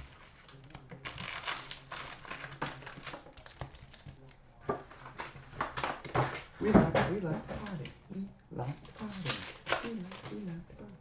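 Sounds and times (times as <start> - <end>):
card wrappers crinkling and tearing: 0.0 - 6.5, 8.7 - 10.6.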